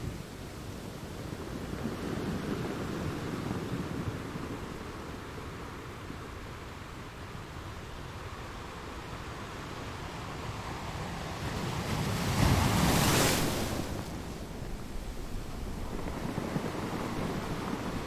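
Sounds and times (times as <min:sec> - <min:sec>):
sea waves breaking on shore: 0:09.6 - 0:18.0.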